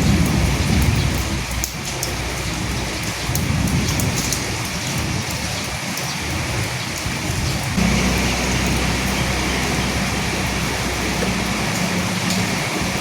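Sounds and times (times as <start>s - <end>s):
rain falling on dead leaves: 0.0s - 13.0s
low rumble: 7.8s - 13.0s.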